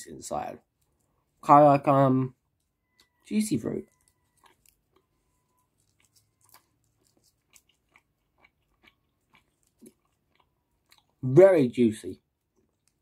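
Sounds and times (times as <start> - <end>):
person chewing gum: 2.3 - 11.2, 12.2 - 13.0.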